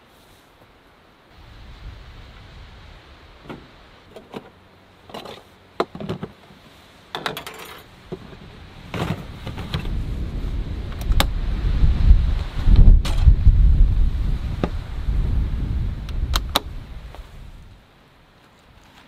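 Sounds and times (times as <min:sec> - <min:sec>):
low rumble: 0:08.4 - 0:17.8.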